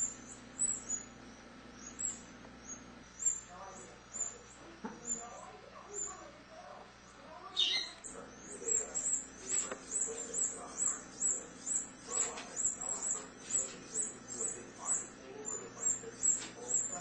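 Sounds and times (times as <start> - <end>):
nestlings cheeping: 0.0 - 17.0.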